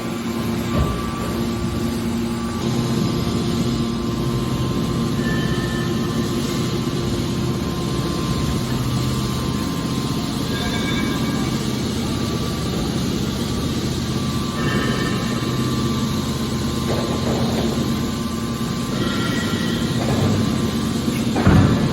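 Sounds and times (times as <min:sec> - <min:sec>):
hydraulic baler humming: 0:00.0 - 0:21.9
held machine tones: 0:00.9 - 0:16.9.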